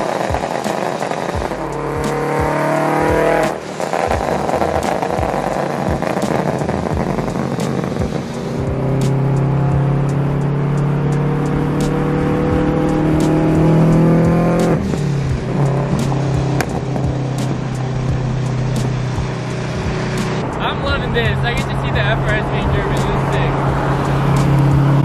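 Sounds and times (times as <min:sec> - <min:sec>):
car engine revving with crackles: 0:00.0 - 0:25.0.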